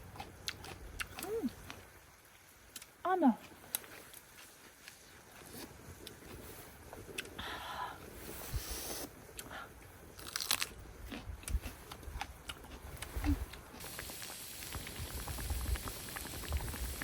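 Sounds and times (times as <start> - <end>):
chewing crunchy food: 0.0 - 7.4, 9.3 - 17.0
steady hiss: 7.7 - 9.7, 13.8 - 17.0.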